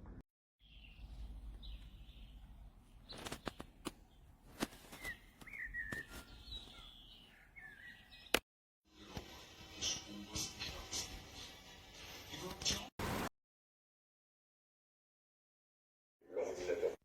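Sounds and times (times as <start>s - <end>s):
bird chirps and whistled calls: 4.8s - 8.4s.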